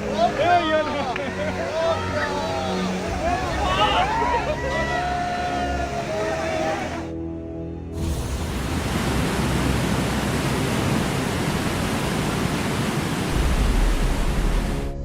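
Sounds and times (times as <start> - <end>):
deep rumble: 8.0 - 15.0
floodwater roaring: 8.0 - 15.0.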